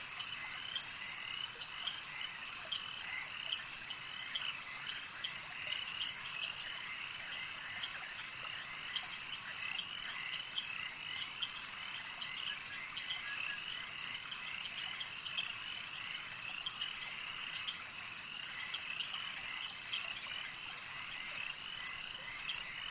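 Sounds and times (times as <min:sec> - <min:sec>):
frogs chirping: 0:00.0 - 0:22.9.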